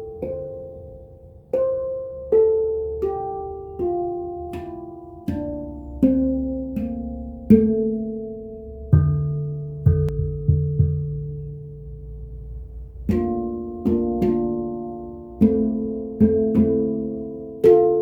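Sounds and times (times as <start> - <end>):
handpan notes ringing: 0.0 - 18.0.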